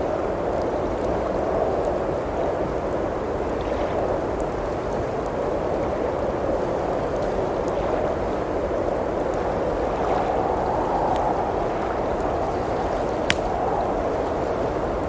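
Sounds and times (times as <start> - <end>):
blizzard wind blowing: 0.0 - 15.0
wood fire crackling: 0.0 - 15.0.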